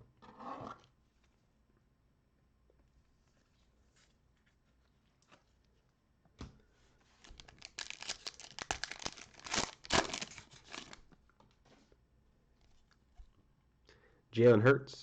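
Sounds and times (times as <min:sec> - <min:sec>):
foil wrapper tearing and crinkling: 0:07.2 - 0:11.0.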